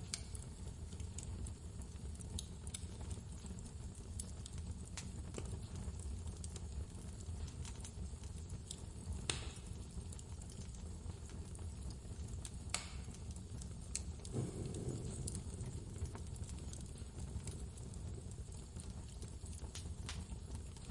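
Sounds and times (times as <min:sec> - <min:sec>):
fire pops: 0:00.0 - 0:20.9
wood fire crackling: 0:00.0 - 0:20.9
blizzard wind rumble: 0:14.3 - 0:17.4.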